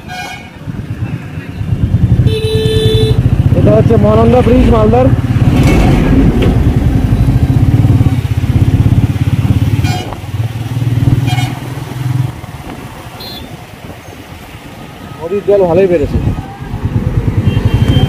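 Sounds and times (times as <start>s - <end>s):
motorcycle engine running: 1.6s - 12.4s.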